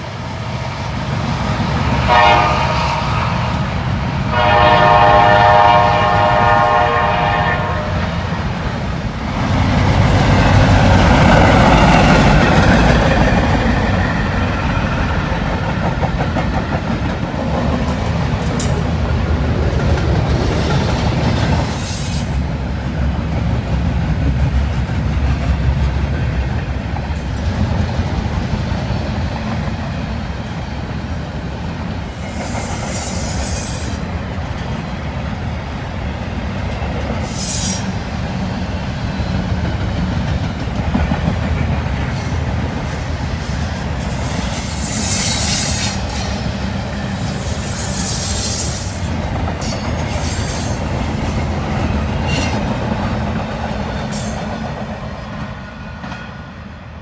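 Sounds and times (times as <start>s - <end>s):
train cars rumbling past: 0.0s - 57.0s.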